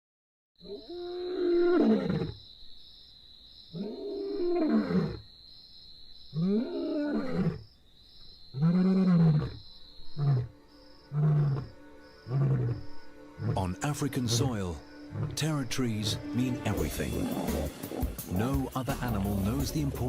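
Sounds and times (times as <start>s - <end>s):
lion roaring: 3.8s - 5.2s, 11.1s - 14.5s, 15.1s - 15.4s, 16.7s - 20.0s
lion grunting: 11.1s - 20.0s.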